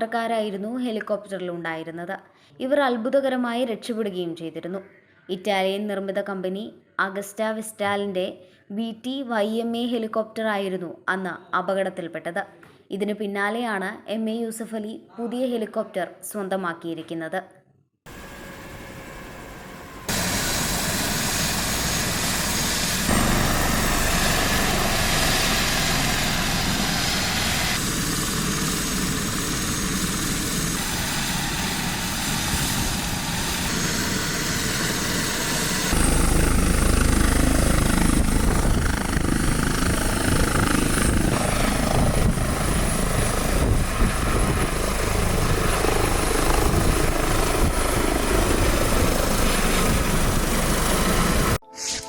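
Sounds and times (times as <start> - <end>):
helicopter rotor and engines: 18.1 - 51.6.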